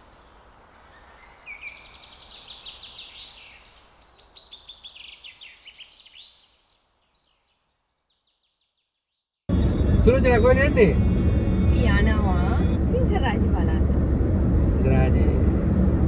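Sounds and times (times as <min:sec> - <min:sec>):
birds singing: 0:00.0 - 0:09.4.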